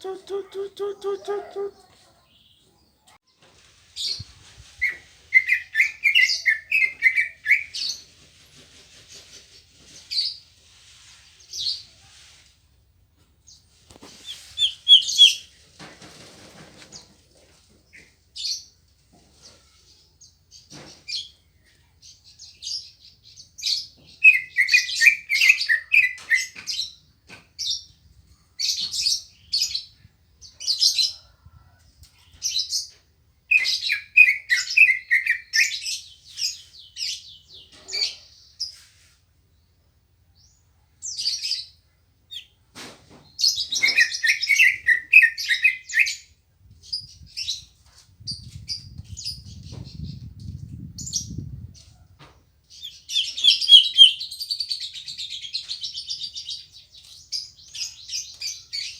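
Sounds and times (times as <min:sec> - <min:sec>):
bird singing high chirps: 0:14.2 - 0:15.5, 0:52.8 - 0:58.9.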